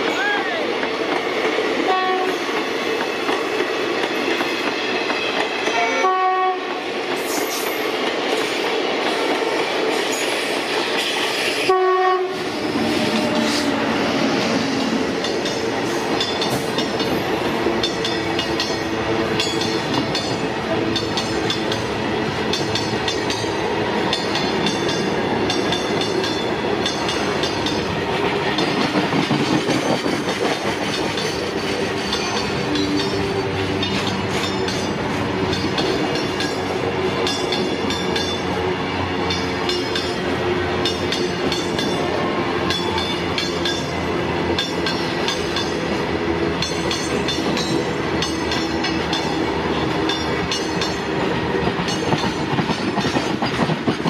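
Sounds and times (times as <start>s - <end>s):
train wheels clickety-clack: 0.2s - 54.0s
short train horn notes: 1.9s - 2.5s, 5.7s - 6.7s, 11.6s - 13.9s.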